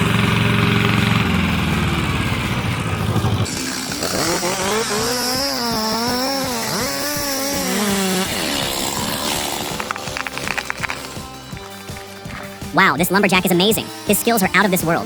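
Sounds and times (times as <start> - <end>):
low engine sound: 0.0 - 15.0
chainsaw cutting wood: 3.1 - 12.7.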